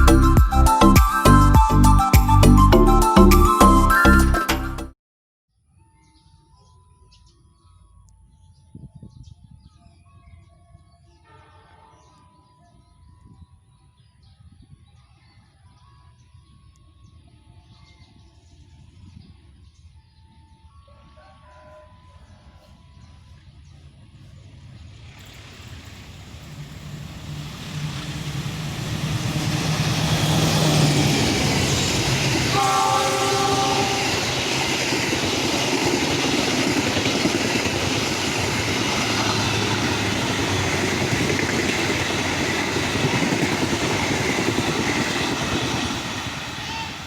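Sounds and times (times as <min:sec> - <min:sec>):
train horn chord: 0:11.2 - 0:12.4, 0:27.7 - 0:35.2
train wheel and rail noise: 0:23.5 - 0:47.0.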